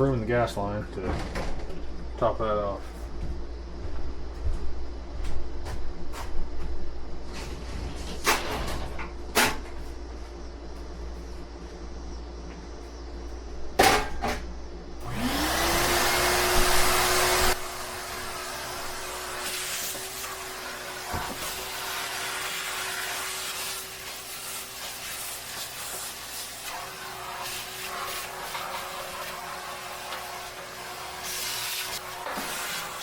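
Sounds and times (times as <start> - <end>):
vacuum cleaner motor humming: 15.0 - 33.0.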